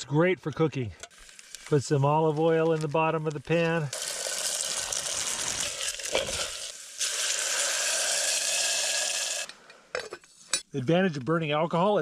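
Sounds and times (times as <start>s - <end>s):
oil sizzling in a pan: 3.9s - 9.5s.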